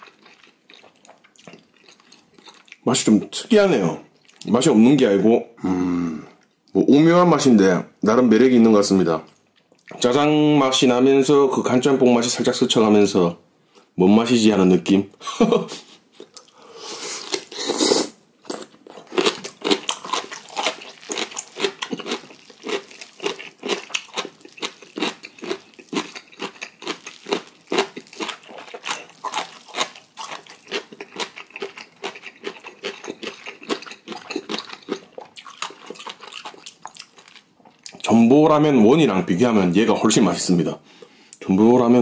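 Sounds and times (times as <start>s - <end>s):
man chewing noodles: 0.0s - 2.8s, 16.1s - 38.0s.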